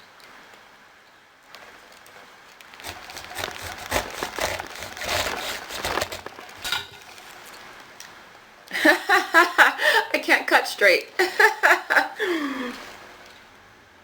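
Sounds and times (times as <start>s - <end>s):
crinkling and scraping handling: 2.5s - 7.9s.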